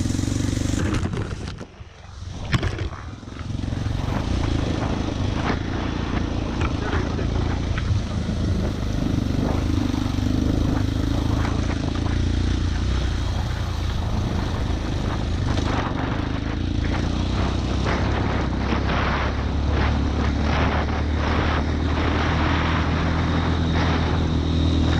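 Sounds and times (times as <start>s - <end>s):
vehicle engine droning: 0.0s - 24.9s.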